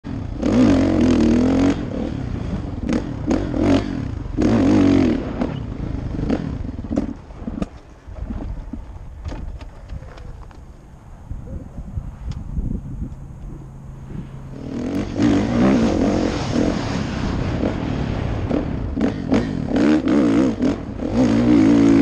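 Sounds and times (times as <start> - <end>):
dirt bike engine revving: 0.1 - 7.6, 13.6 - 22.0.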